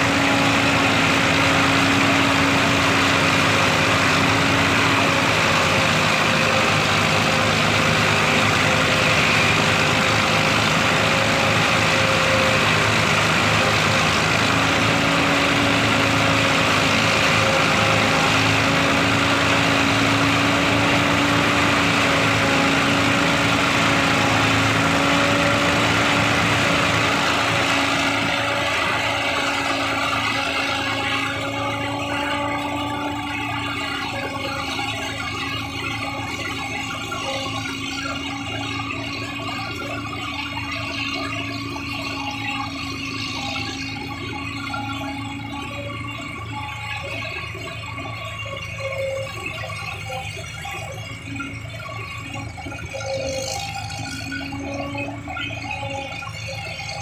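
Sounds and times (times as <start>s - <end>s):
heavy engine humming: 0.0s - 57.0s.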